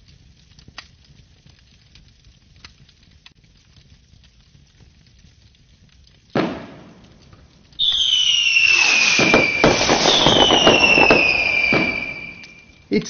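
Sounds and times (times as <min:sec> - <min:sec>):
firework crackling: 0:02.7 - 0:13.0
firework bang: 0:06.4 - 0:12.8
high falling firework whistles: 0:07.8 - 0:12.9.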